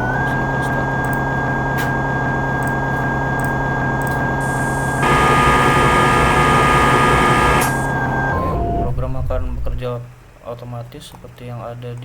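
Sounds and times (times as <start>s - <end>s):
machine hum with fixed tones: 3.4s - 9.9s.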